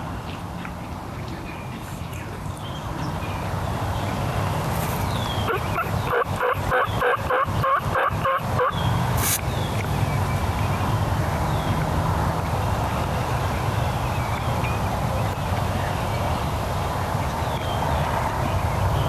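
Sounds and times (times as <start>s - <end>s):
turkey yelping: 5.4s - 8.7s.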